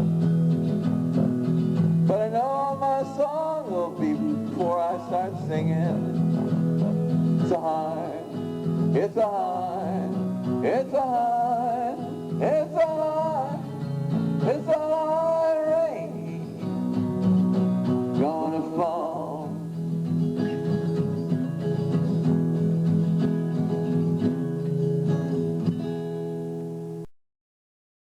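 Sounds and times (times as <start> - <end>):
acoustic guitar strumming: 0.0 - 27.1
man singing: 1.9 - 17.1, 17.7 - 20.0.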